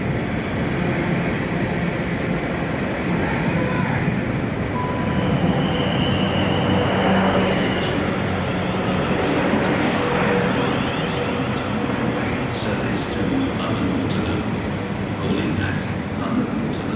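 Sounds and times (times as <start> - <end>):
train rumbling past: 0.0 - 16.9
high whine: 4.7 - 8.6.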